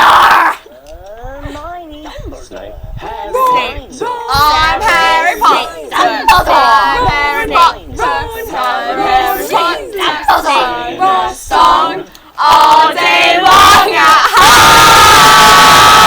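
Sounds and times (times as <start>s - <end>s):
loud group shout: 0.0s - 0.6s, 12.6s - 16.0s
group singing a cappella: 1.0s - 14.6s.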